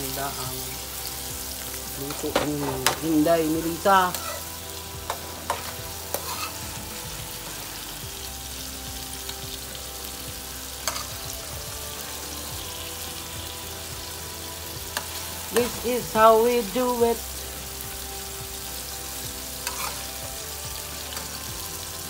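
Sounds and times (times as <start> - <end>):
vegetables sizzling in hot oil: 0.0 - 22.0.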